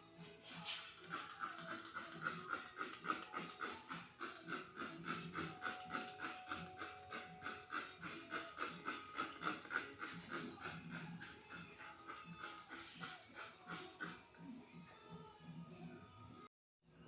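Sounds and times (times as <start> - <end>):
background music with quick beat: 0.0 - 16.5.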